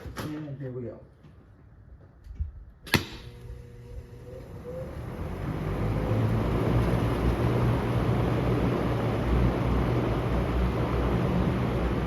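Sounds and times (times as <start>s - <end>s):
fan motor whine and air rush: 2.9s - 12.0s.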